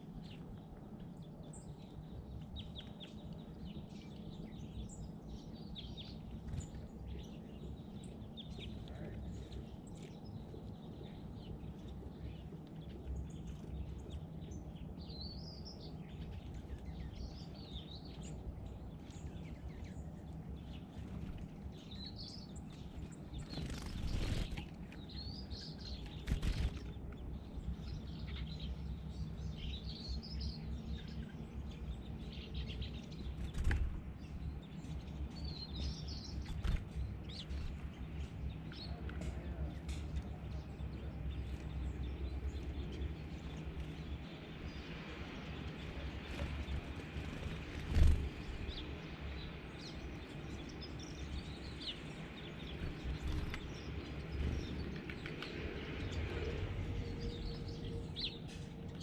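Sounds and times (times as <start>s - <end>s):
low background hum: 0.0s - 59.0s
small birds chirping: 0.0s - 59.0s
wing flutter or splashing: 46.2s - 48.8s.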